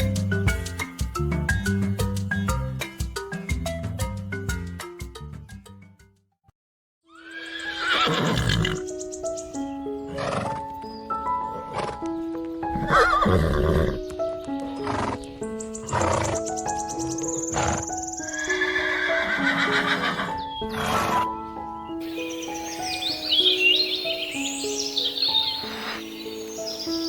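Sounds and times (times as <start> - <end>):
gentle melodic backing track: 0.0 - 5.6, 8.8 - 27.0
horse neighing: 7.1 - 8.8, 12.8 - 14.0, 17.6 - 21.3.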